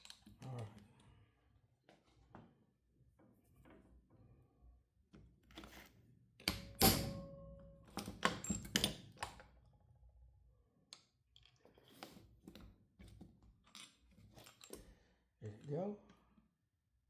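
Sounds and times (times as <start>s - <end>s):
metallic ring: 6.8s - 8.2s.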